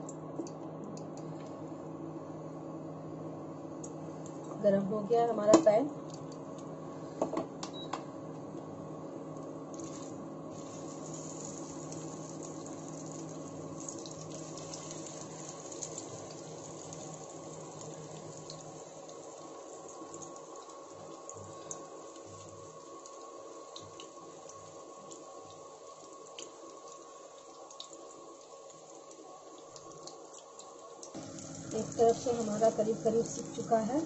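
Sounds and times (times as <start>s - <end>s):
cooktop hum: 0.0s - 34.0s
patties sizzling in hot oil: 9.7s - 34.0s.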